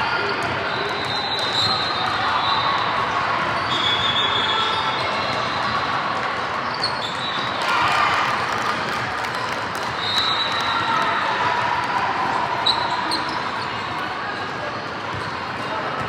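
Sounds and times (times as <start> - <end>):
crowd noise: 0.0 - 16.0
sneakers squeaking on court: 12.6 - 14.1.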